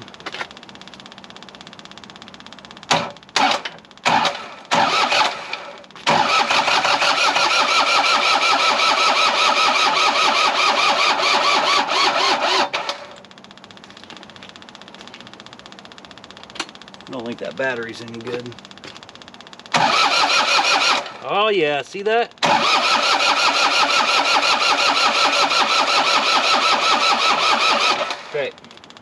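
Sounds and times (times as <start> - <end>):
diesel engine starter cranking: 2.8 - 13.3, 19.2 - 21.5, 22.4 - 29.0
faint fuel pump ticking: 13.2 - 19.8.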